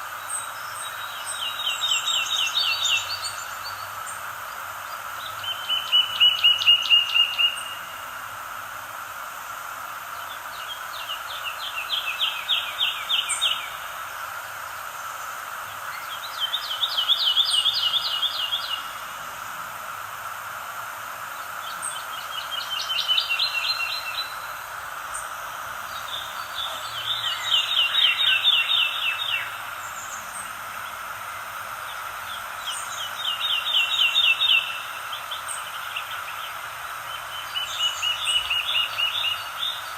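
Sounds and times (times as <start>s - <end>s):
steady background hiss: 0.0s - 39.9s
songbird trilling: 25.8s - 31.0s, 31.9s - 36.4s.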